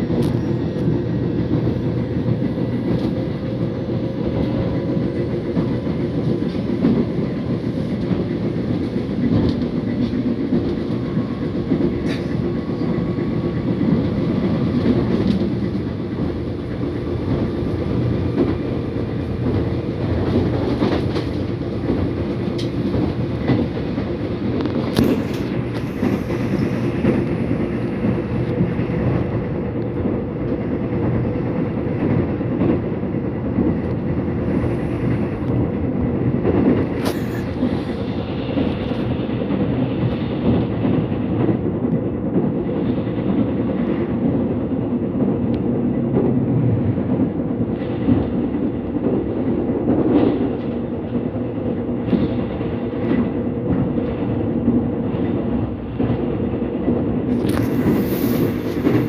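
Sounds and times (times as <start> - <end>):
subway train wheels rumbling: 0.0 - 59.0
clacks from rails: 4.3 - 12.7.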